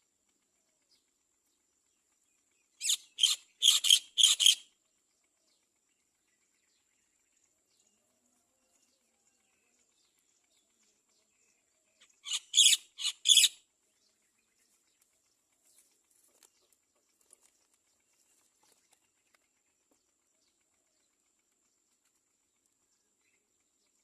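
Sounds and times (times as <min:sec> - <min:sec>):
birds giving harsh calls: 0:02.8 - 0:04.7, 0:12.0 - 0:13.6.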